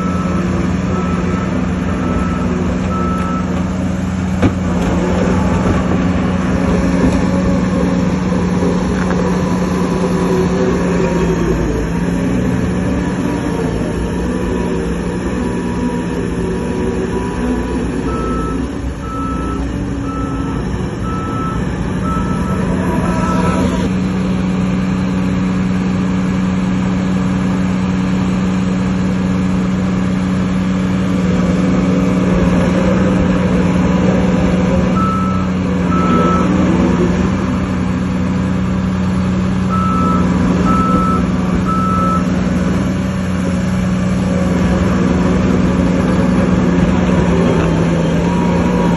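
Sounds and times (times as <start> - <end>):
reversing alarm beeping: 0.0 - 3.6, 16.0 - 23.9, 34.9 - 36.7, 39.7 - 42.3
diesel earthmoving machinery running: 0.0 - 48.9.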